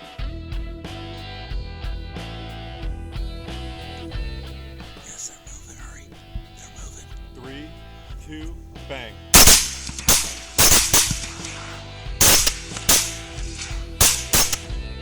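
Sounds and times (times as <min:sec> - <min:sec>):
background music: 0:00.6 - 0:15.0
rapid rifle fire: 0:09.4 - 0:14.6.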